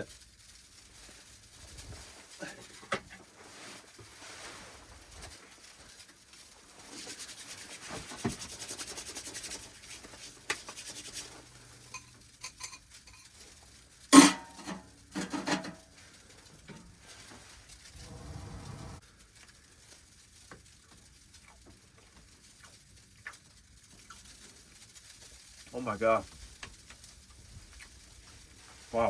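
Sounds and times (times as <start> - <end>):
metal utensil scraping in a pan: 11.8 - 13.4, 14.1 - 16.0.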